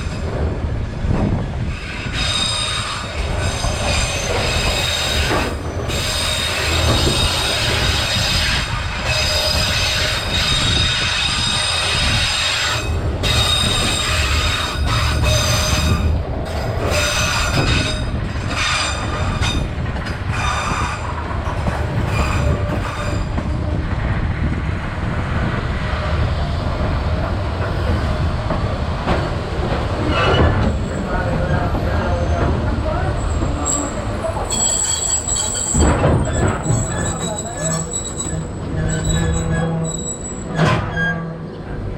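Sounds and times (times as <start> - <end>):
train rumble: 0.0 - 41.9
high wheel squeal: 1.7 - 16.1, 33.2 - 41.2.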